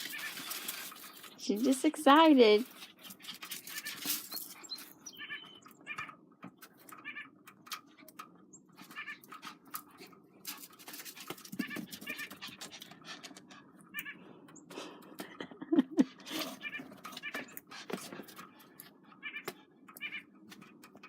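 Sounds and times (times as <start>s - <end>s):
crackles: 0.0s - 5.1s.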